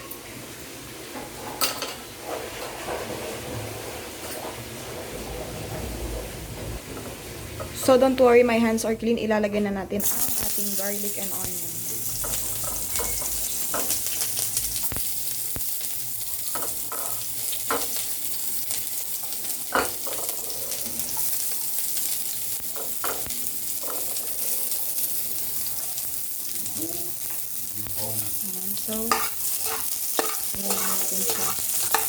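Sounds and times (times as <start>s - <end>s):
garlic and onions sizzling in oil: 10.0s - 32.0s
utensil scraping and knocking pan: 29.1s - 32.0s.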